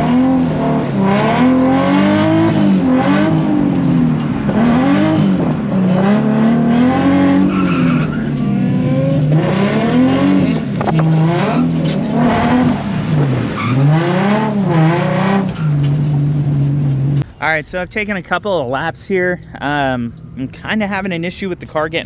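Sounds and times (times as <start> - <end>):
car engine revving: 0.0 - 18.4, 19.4 - 22.0
tyres skidding on wet track: 0.8 - 16.3.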